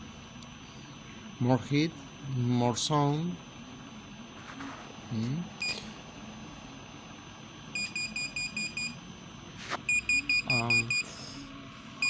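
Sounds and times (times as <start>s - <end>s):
alarm beeping: 7.7s - 9.0s, 9.9s - 11.4s.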